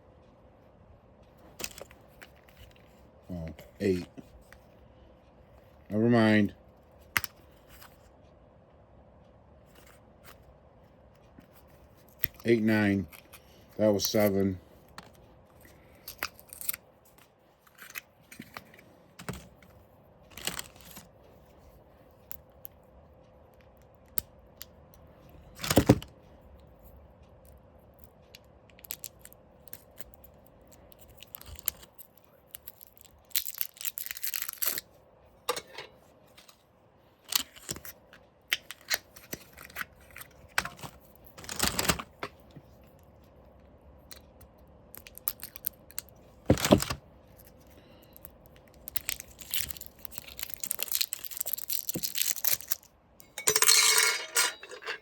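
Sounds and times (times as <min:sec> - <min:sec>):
small parts clicking and tapping: 0:27.4 - 0:34.8.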